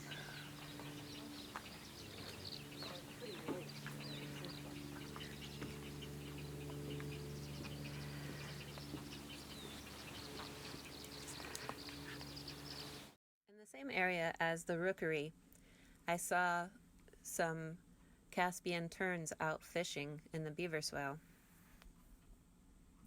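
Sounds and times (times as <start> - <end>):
chorus of birds chirping: 0.0 - 13.2
steady low hum: 0.0 - 13.2.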